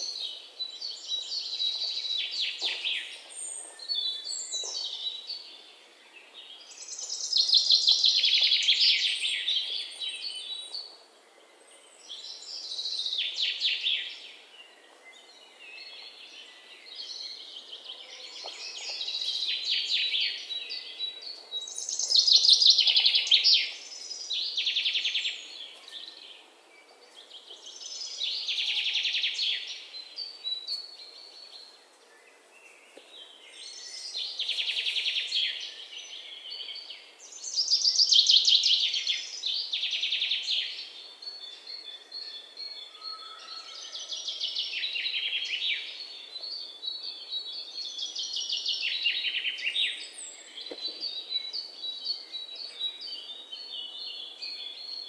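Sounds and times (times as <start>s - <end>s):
faint background hiss: 0.0s - 42.9s
small birds twittering: 0.0s - 55.0s.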